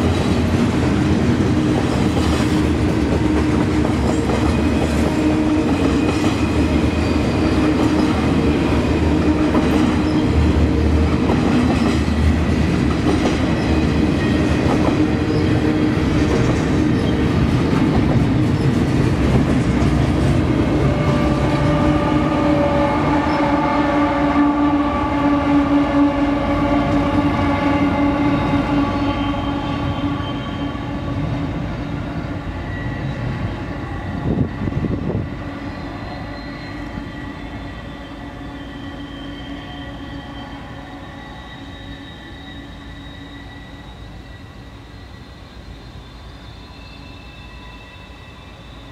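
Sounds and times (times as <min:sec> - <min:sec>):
train wheels clattering: 0:00.0 - 0:21.9
diesel locomotive passing: 0:00.0 - 0:48.9.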